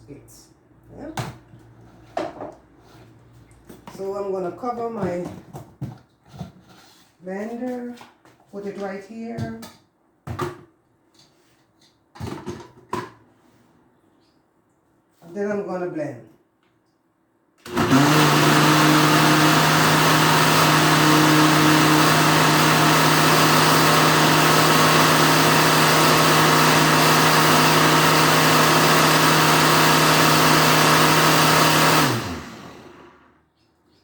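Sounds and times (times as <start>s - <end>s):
blender running: 17.7s - 33.4s.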